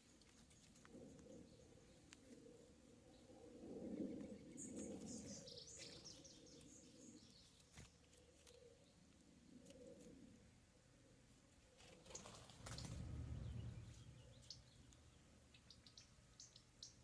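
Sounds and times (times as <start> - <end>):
low background hum: 10.2 - 17.0.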